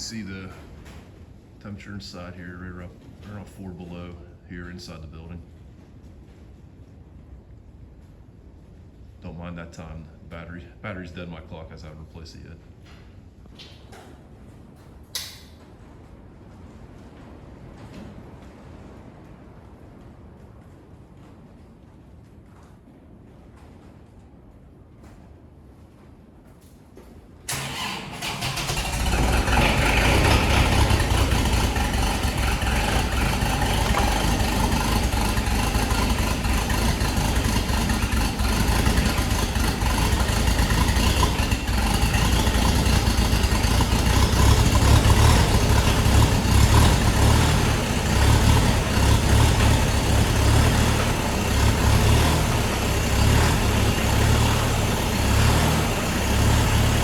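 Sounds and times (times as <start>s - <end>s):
diesel engine running: 27.5s - 57.0s
starter motor cranking: 27.5s - 57.0s.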